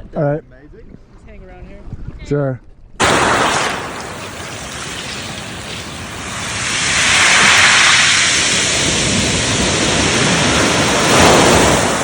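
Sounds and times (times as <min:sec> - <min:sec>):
seawater rushing: 0:03.0 - 0:12.0.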